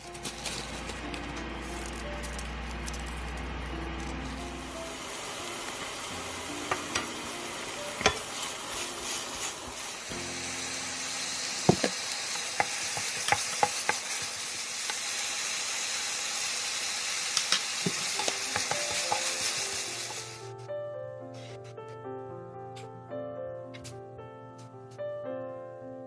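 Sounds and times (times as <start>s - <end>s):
garlic sizzling in oil: 4.2s - 20.5s.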